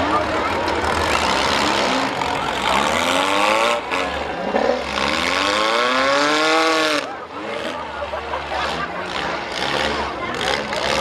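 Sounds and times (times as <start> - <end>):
car engines revving hard: 0.0 - 11.0
din of cars running: 0.0 - 11.0.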